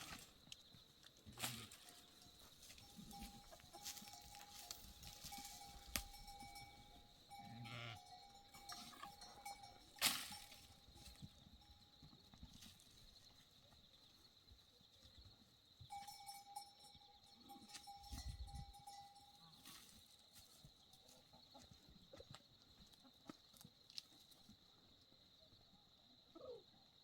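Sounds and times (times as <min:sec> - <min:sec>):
goats and sheep calling: 0:01.3 - 0:11.6.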